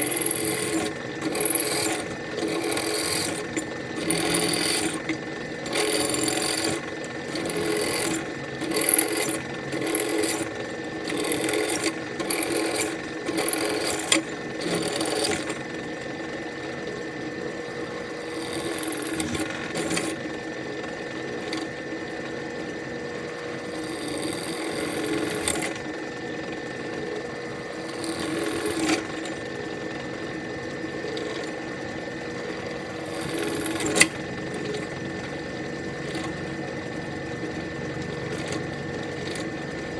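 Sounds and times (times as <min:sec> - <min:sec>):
electric drill grinding metal: 0:00.0 - 0:15.7, 0:17.5 - 0:20.3, 0:23.2 - 0:25.9, 0:26.7 - 0:29.6, 0:32.3 - 0:35.0, 0:37.9 - 0:39.9.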